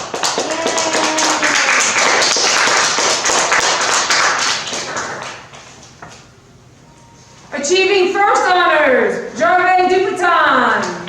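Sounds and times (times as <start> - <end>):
students clapping: 0.0 - 5.7.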